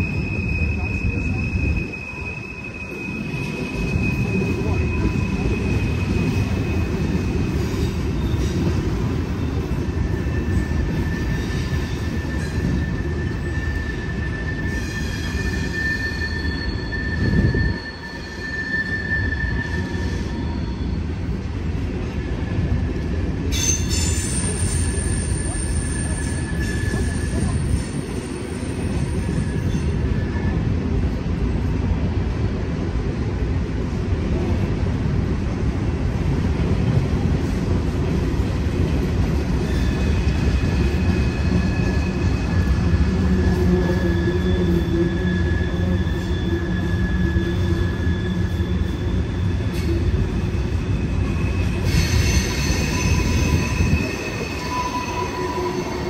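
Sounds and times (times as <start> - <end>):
high wheel squeal: 0.0 - 8.8, 9.4 - 21.4, 22.1 - 30.8, 39.6 - 56.0
freight train wheels rumbling: 0.0 - 56.0.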